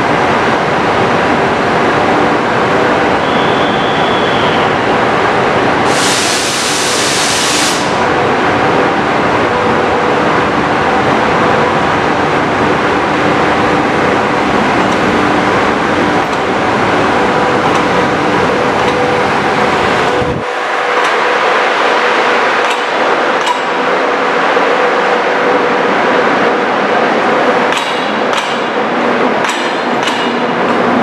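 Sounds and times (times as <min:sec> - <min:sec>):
train rumbling on rails: 0:00.0 - 0:31.0
high hiss: 0:05.9 - 0:08.0.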